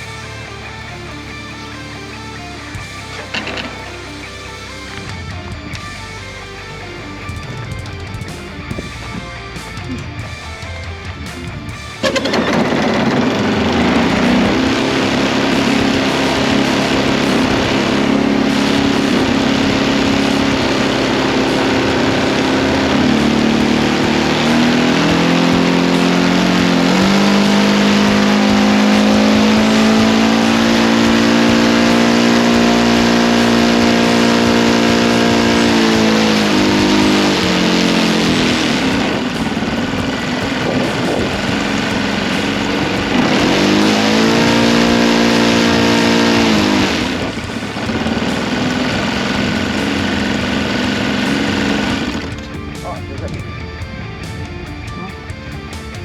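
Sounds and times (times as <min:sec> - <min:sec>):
model airplane engine revving: 0:12.0 - 0:53.0.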